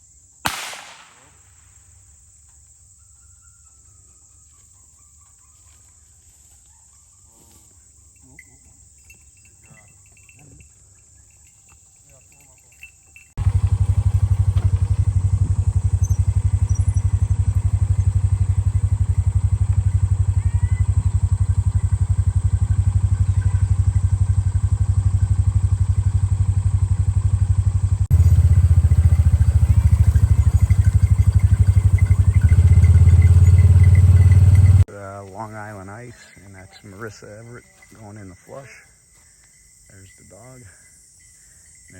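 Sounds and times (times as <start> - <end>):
faint crickets: 0.0 - 41.9
engine running with low throb: 13.4 - 34.9.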